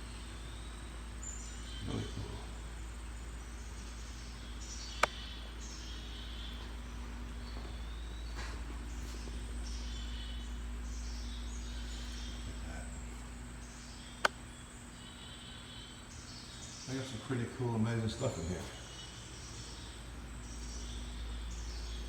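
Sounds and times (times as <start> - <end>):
high-pitched chirping calls: 0.0 - 22.0
sharp clicks: 5.0 - 5.3, 14.1 - 14.5.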